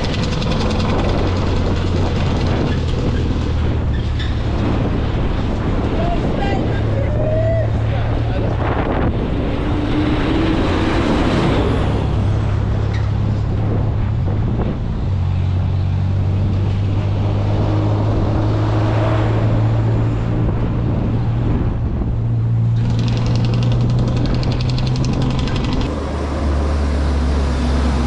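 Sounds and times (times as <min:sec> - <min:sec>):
fast even rattle: 0:00.0 - 0:03.2, 0:22.8 - 0:26.0
vehicle engine running: 0:00.0 - 0:04.0, 0:07.9 - 0:28.0
road noise: 0:00.0 - 0:28.0.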